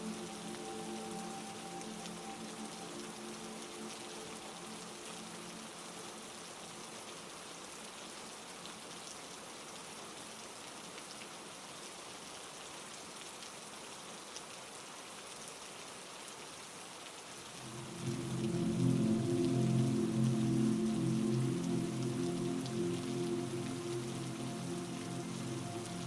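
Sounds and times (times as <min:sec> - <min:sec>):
soft sustained music tone: 0:00.0 - 0:07.6, 0:17.5 - 0:26.0
heavy rain hiss: 0:00.0 - 0:10.6, 0:17.3 - 0:26.0.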